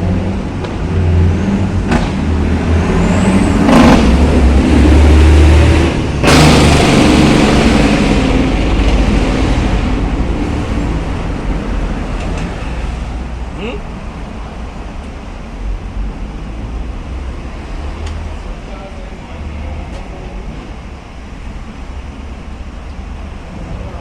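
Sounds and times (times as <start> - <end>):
vehicle engine rumbling: 0.0 - 24.0
sharp noise: 1.9 - 10.0.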